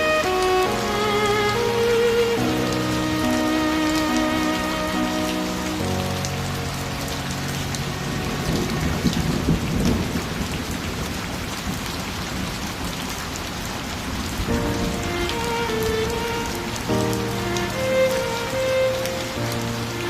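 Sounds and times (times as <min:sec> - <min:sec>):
held instrumental notes: 0:00.0 - 0:08.7, 0:14.5 - 0:20.0
steady rain falling: 0:00.0 - 0:20.0
low rumble of thunder: 0:08.1 - 0:12.5.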